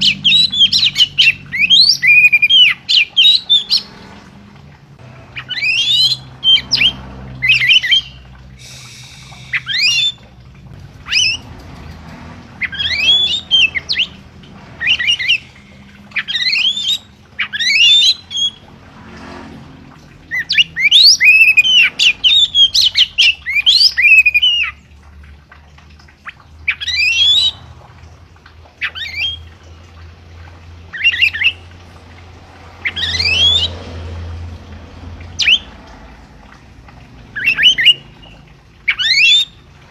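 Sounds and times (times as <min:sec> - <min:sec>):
songbird whistling song: 0:00.0 - 0:03.9, 0:05.4 - 0:10.3, 0:11.0 - 0:11.4, 0:12.6 - 0:14.2, 0:14.8 - 0:18.6, 0:20.3 - 0:24.8, 0:32.8 - 0:33.7, 0:35.4 - 0:35.7, 0:37.4 - 0:39.7.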